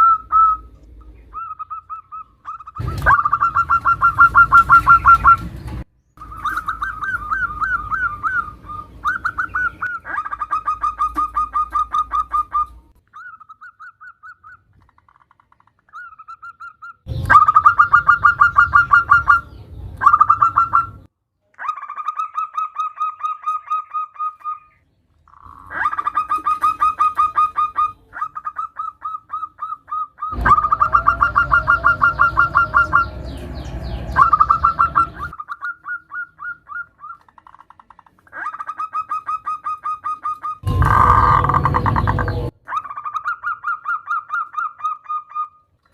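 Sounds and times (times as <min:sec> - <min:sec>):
dove cooing: 0:00.0 - 0:05.6, 0:06.2 - 0:13.3, 0:25.5 - 0:37.3, 0:38.3 - 0:42.5.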